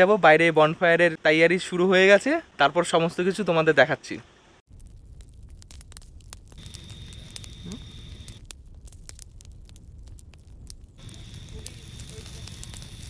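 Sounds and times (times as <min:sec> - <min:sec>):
fire crackling and popping: 0:04.6 - 0:13.0.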